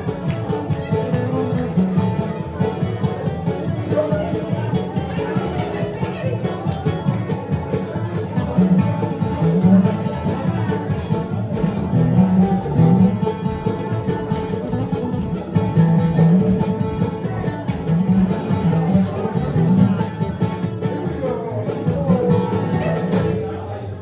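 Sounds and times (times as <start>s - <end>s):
bluegrass band playing: 0.0s - 23.8s
picked banjo: 0.0s - 24.0s.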